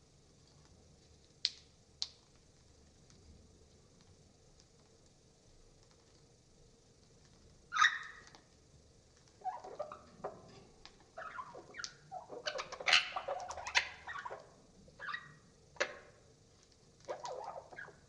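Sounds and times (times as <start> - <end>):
slowed budgerigar squawks and chirps: 7.7 - 8.3, 11.1 - 16.0, 17.0 - 18.0.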